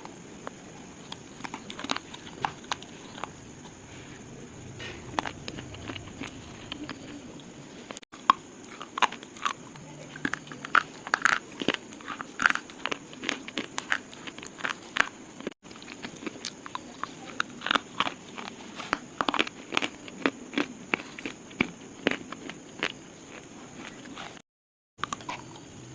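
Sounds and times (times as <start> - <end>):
slate crunching and cracking: 0.0 - 3.8.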